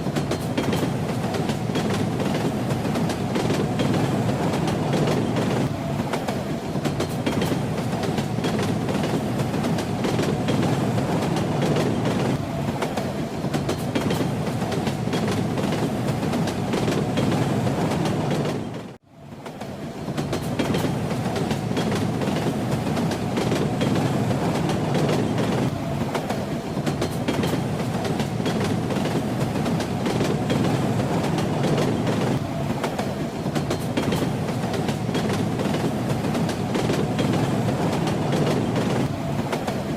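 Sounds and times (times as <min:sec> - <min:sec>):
train rumbling on rails: 0:00.0 - 0:39.9.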